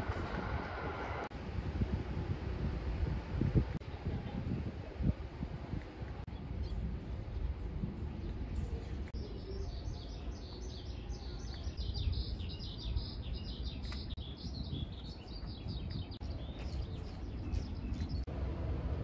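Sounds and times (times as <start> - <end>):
bird twittering song: 8.2 - 18.3
low steady rumble: 17.4 - 19.0.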